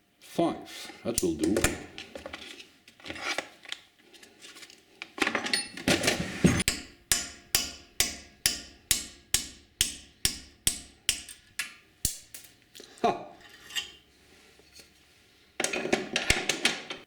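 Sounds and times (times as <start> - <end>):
hammer tapping metal punch: 6.6 - 12.5.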